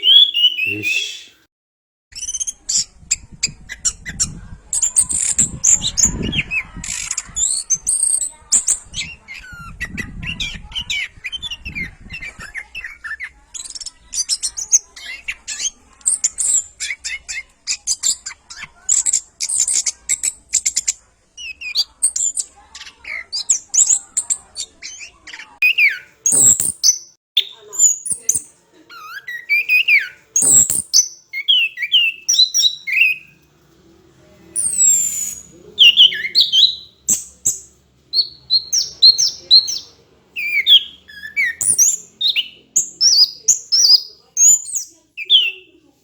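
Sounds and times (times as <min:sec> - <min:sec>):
thrush singing whistles and trills: 0:00.0 - 0:01.4, 0:25.6 - 0:33.3, 0:34.6 - 0:45.7.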